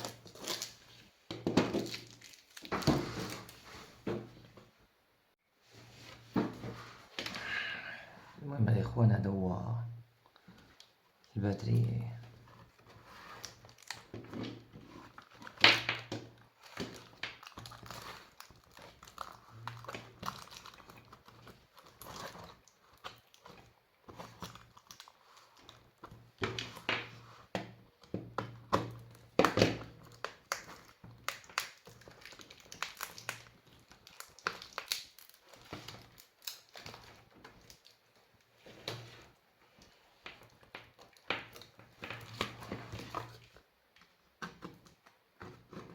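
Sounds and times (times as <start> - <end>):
plastic crinkling: 0.0 - 3.9, 12.4 - 26.9, 28.9 - 43.6.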